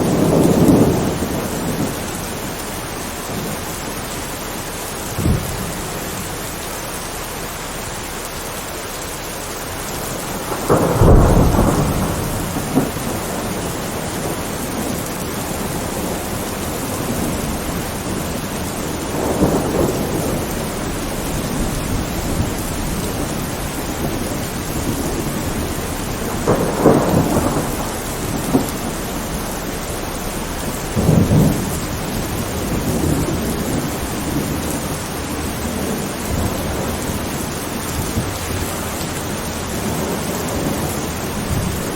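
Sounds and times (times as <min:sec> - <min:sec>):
thunder rumbling: 0:00.0 - 0:08.0, 0:09.4 - 0:41.9
steady rain: 0:00.0 - 0:41.9.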